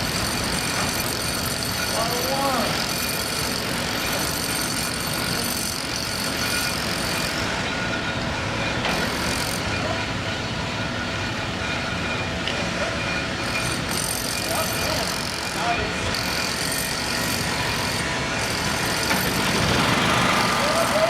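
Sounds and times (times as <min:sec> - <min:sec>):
vehicle engine noise: 0:17.4 - 0:21.0.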